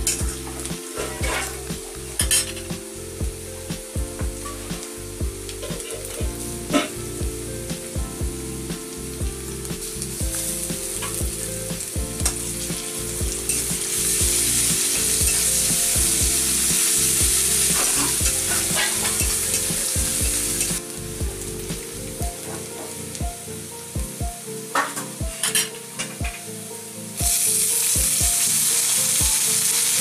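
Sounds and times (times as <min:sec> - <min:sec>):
soft background music with beat: 0:00.0 - 0:30.0
paste sizzling in a pan: 0:08.4 - 0:21.9, 0:27.2 - 0:30.0.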